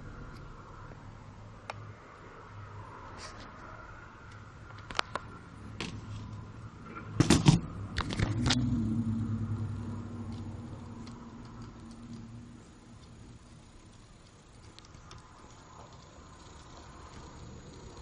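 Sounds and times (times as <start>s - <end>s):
low hum: 5.4s - 18.0s.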